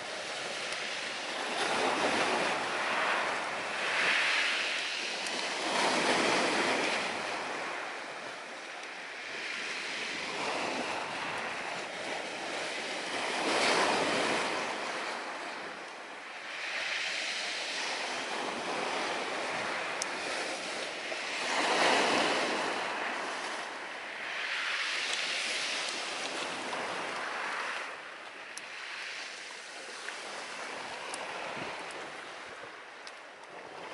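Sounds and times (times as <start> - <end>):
surf washing onto shore: 0.0 - 33.9.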